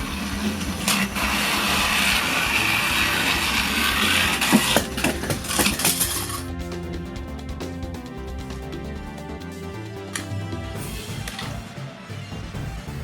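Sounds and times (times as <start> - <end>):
toy train motors whirring: 0.0 - 6.5
sharp clattering knocks: 4.4 - 6.4.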